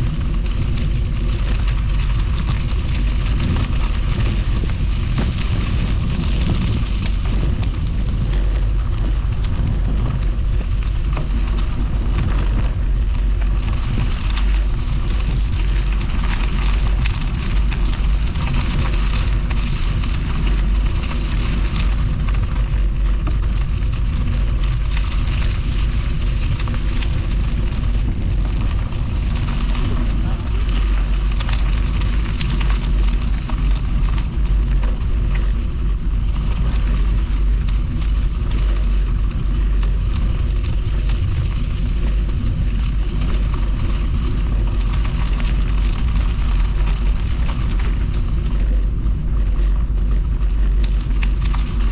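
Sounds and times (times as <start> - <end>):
tyres rolling over trail: 0.0 - 51.9
wind buffeting microphone: 0.0 - 51.9.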